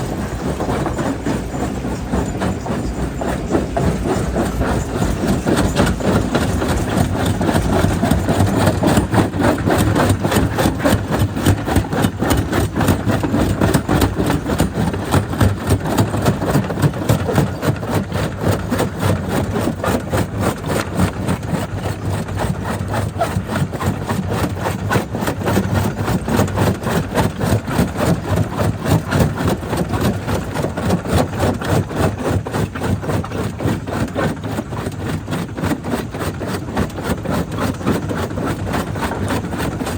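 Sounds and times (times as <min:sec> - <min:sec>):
jaw crusher heavy drone: 0:00.0 - 0:21.4.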